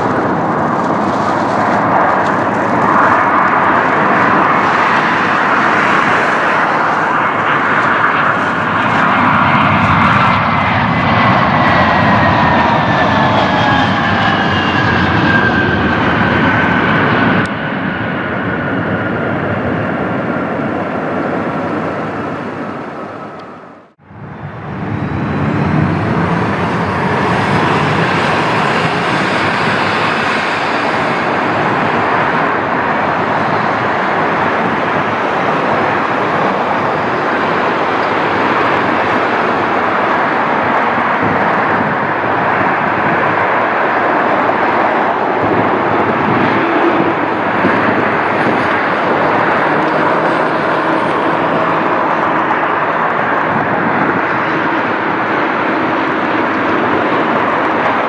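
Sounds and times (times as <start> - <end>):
jet engines roaring: 0.0 - 58.0
faint high whine: 19.6 - 58.0.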